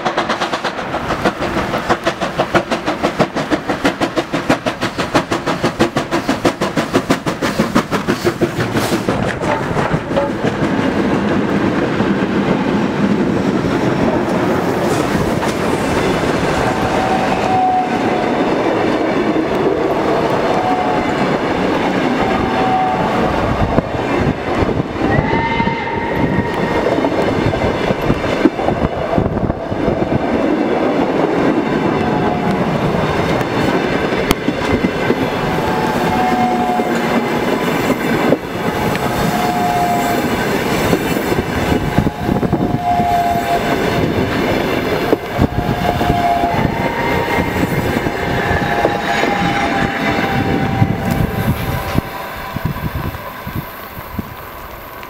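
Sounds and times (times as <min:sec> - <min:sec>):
train squealing: 0:00.0 - 0:10.8, 0:13.7 - 0:29.5, 0:31.5 - 0:55.0
wheels clattering over rail joints: 0:00.0 - 0:16.4
train coaches rumbling past: 0:00.0 - 0:55.0.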